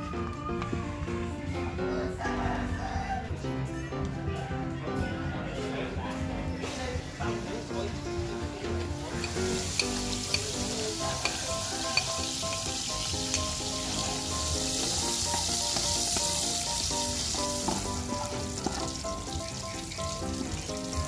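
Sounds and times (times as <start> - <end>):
garlic sizzling in oil: 9.0 - 21.0.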